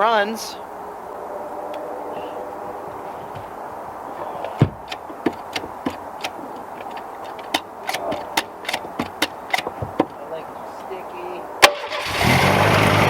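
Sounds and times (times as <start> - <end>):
sharp engine pops and ticks: 4.8 - 10.1, 11.6 - 13.0
car engine running unevenly: 11.8 - 13.0.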